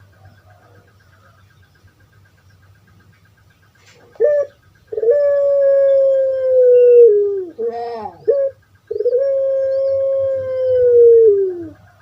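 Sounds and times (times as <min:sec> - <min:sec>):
dove cooing: 0:03.8 - 0:12.0.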